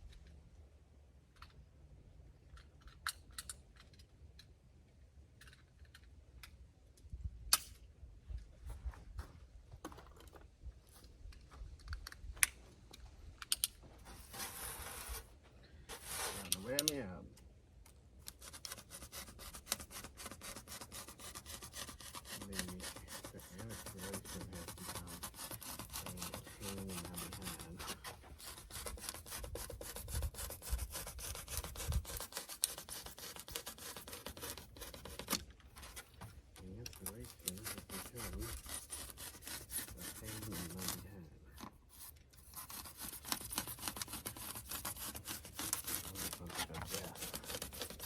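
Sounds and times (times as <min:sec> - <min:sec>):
insulation rubbing and scraping: 0:13.9 - 0:17.1, 0:18.2 - 0:48.0.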